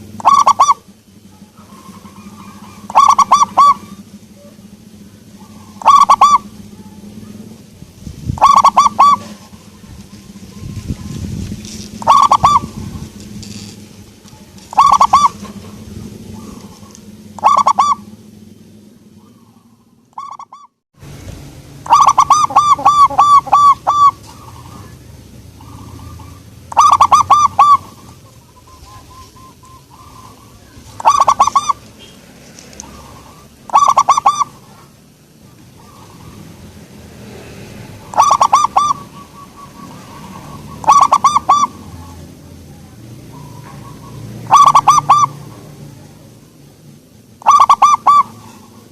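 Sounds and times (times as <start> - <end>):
dove cooing: 0.0 - 7.7, 8.3 - 20.7, 21.8 - 46.4, 47.4 - 48.9.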